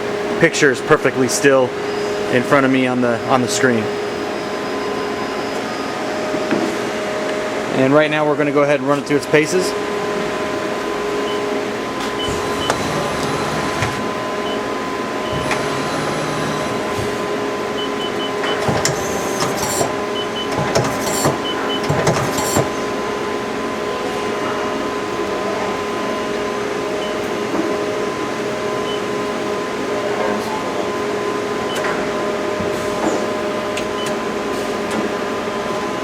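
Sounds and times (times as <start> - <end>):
steady machine hum: 0.0 - 36.0
sharp mechanical bursts: 20.5 - 22.7.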